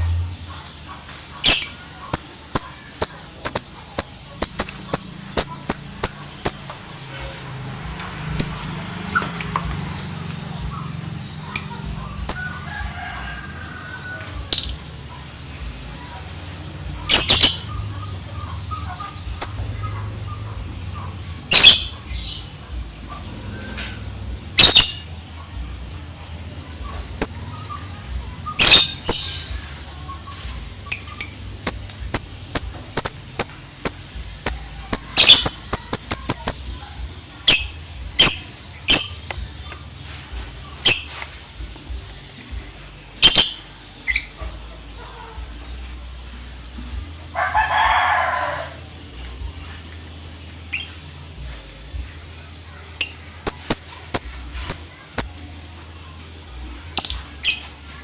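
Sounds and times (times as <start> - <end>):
lovebird rapid chirping: 1.4 - 6.8, 17.0 - 17.9, 30.9 - 36.8, 43.2 - 44.4.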